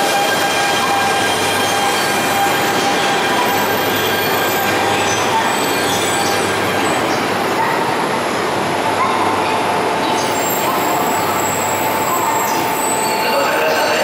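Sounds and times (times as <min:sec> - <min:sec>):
train running noise: 0:00.0 - 0:14.0
high-pitched tones: 0:09.0 - 0:14.0.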